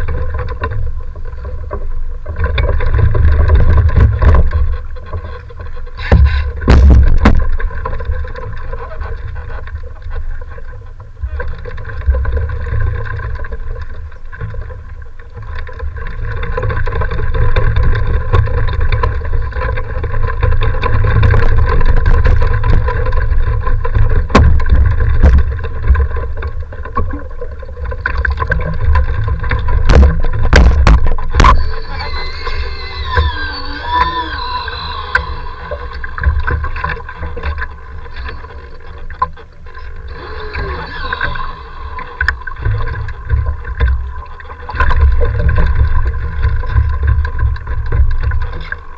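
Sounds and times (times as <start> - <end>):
faint steady hum: 0.0 - 48.9
sharp clicks: 30.6 - 39.3, 40.0 - 44.2.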